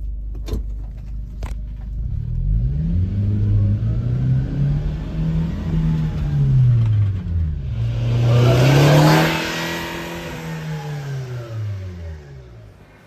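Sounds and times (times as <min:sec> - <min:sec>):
truck engine revving: 0:02.3 - 0:13.0
rushing noise: 0:07.6 - 0:11.9.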